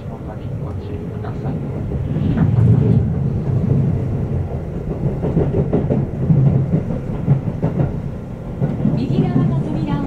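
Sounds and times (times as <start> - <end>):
train wheels rumbling on rail: 0.0 - 10.0
wheels clacking over track joints: 4.4 - 10.0.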